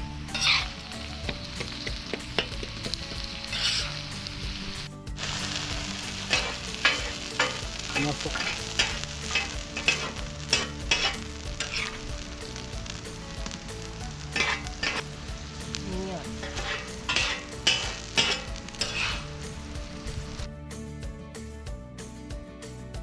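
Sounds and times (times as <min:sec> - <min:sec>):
food sizzling in a pan: 0:00.0 - 0:20.5
stirring scrapes and knocks: 0:00.3 - 0:04.8, 0:06.1 - 0:12.9, 0:13.5 - 0:20.5.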